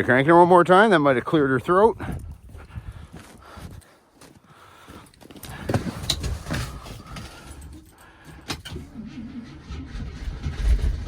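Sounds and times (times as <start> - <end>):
starter cranking engine: 8.3 - 11.0.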